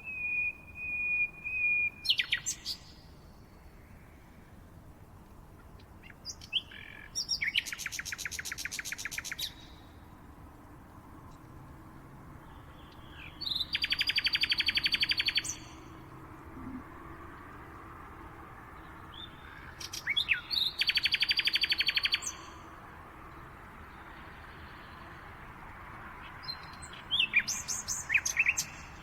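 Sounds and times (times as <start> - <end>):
songbird trilling: 0.0 - 2.8, 13.0 - 15.8, 19.2 - 22.4.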